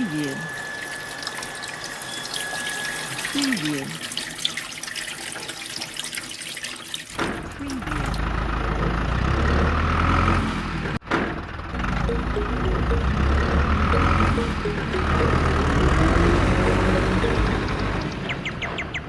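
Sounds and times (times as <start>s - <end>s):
heavy engine low rumble: 7.4s - 19.0s.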